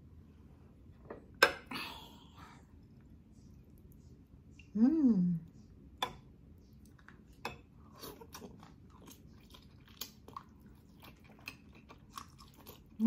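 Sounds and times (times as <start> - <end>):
person chewing with wet clicks: 6.5 - 13.0.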